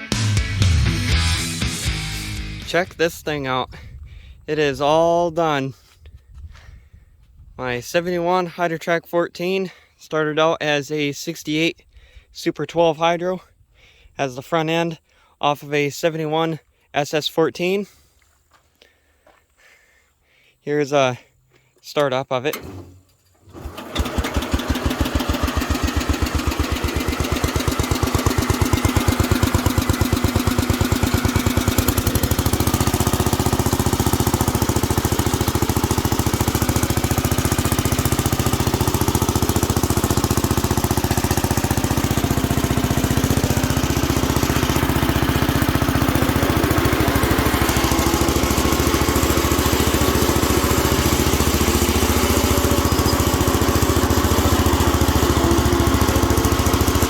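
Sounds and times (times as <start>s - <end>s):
garden tractor engine running: 22.4s - 57.0s.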